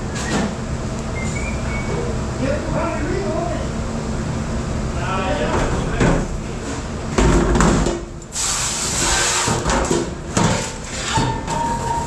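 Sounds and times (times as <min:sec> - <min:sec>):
burst of hissing: 0:08.3 - 0:09.5.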